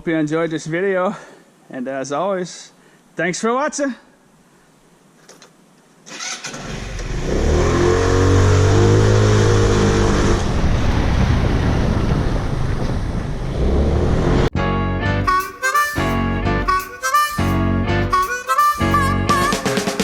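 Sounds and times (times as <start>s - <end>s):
vehicle engine revving: 6.7s - 11.3s, 13.4s - 14.6s.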